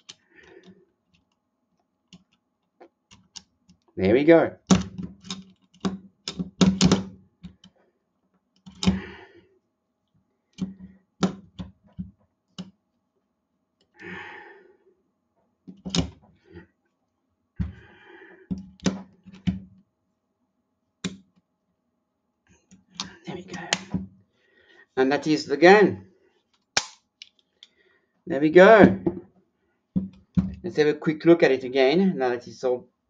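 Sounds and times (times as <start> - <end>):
metal clicks of pistol parts: 26.8 - 27.8.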